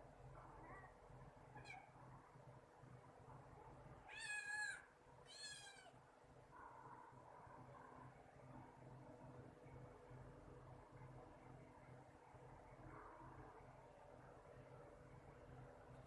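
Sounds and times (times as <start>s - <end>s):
cat meowing: 1.6s - 1.9s, 4.1s - 6.0s.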